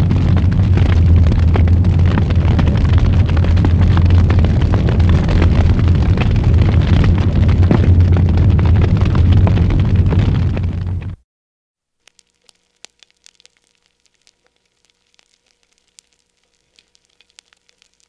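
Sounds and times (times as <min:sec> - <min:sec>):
fire low rumble: 0:00.0 - 0:11.2
wood fire crackling: 0:00.0 - 0:11.2, 0:12.0 - 0:18.0.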